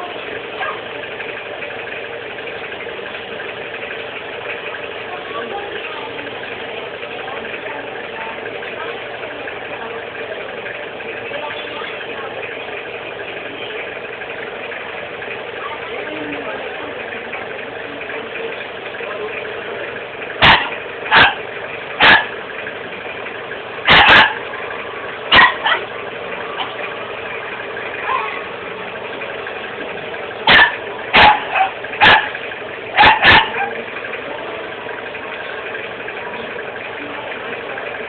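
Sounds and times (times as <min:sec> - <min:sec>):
dog barking: 0:20.4 - 0:22.4, 0:23.8 - 0:24.5, 0:25.3 - 0:25.9, 0:28.0 - 0:28.4, 0:30.4 - 0:33.8.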